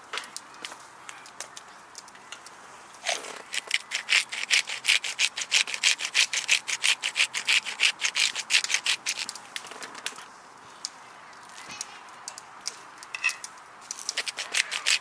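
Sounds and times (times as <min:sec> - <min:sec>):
hand saw cutting wood: 0:03.0 - 0:09.3, 0:14.1 - 0:15.0.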